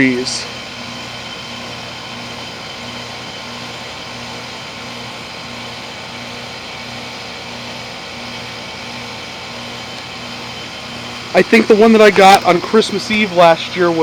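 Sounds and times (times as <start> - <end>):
heat pump unit humming: 0.0 - 14.0.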